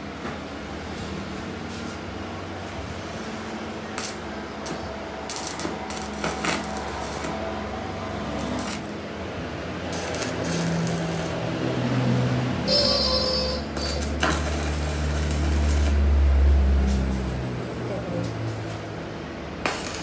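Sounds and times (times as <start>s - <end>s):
machinery humming: 2.5s - 18.1s.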